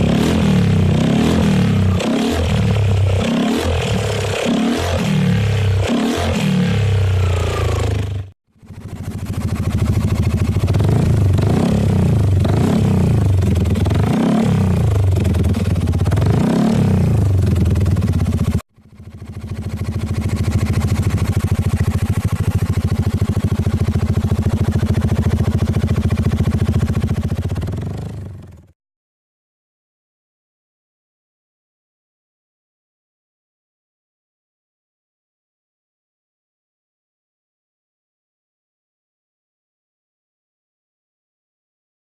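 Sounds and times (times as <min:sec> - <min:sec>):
scooter engine revving and idling: 0:00.0 - 0:28.8.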